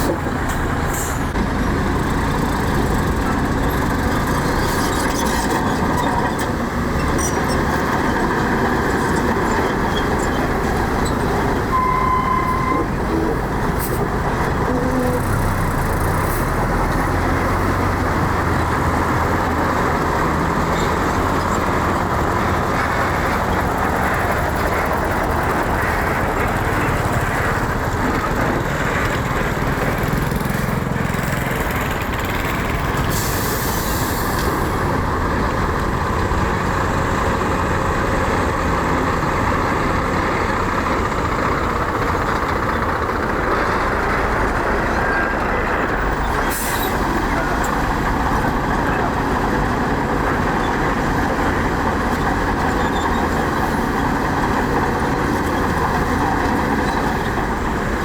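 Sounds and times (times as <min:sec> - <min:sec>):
heavy diesel engines running: 0:00.0 - 0:58.0
short beep: 0:11.7 - 0:12.9.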